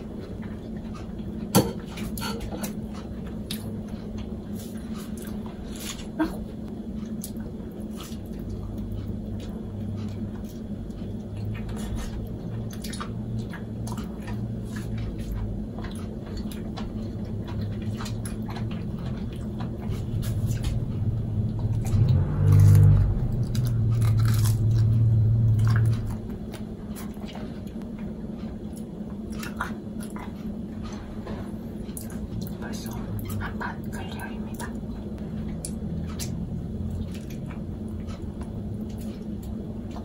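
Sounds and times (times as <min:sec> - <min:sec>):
chewing crunchy pizza: 0:00.0 - 0:40.0
steady low hum: 0:00.0 - 0:40.0
loud low drone: 0:19.3 - 0:26.5.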